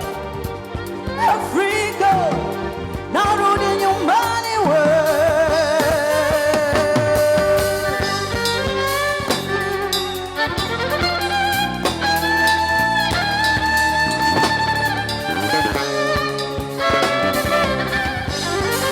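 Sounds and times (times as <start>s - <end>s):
drums: 0.0s - 18.9s
live band playing: 0.0s - 18.9s
sliding lead melody: 0.0s - 18.9s.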